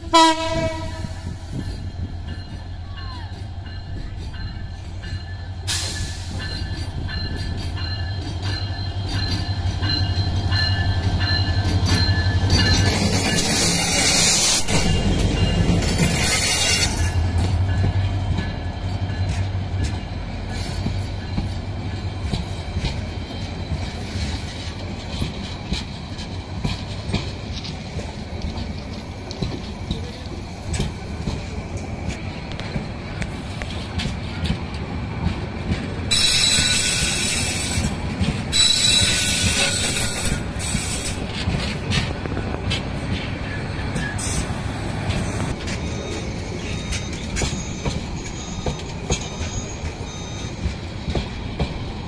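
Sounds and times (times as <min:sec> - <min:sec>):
train wheels clicking: 0:00.2 - 0:52.0
high metallic wheel squeal: 0:04.4 - 0:17.2, 0:36.1 - 0:37.9, 0:38.5 - 0:41.2, 0:43.4 - 0:50.8.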